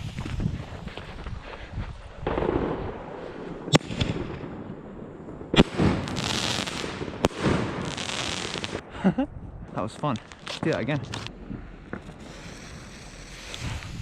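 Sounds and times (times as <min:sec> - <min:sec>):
fireworks hissing and crackling: 0:00.0 - 0:02.6, 0:05.5 - 0:08.8, 0:10.0 - 0:14.0
fireworks bangs: 0:02.2 - 0:08.9, 0:10.2 - 0:14.0.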